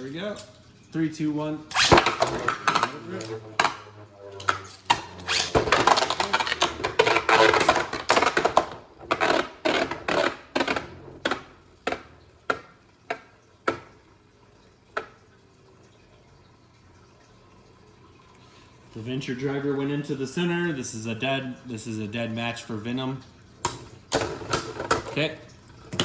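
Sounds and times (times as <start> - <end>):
spinning tops clashing: 1.7 - 11.5.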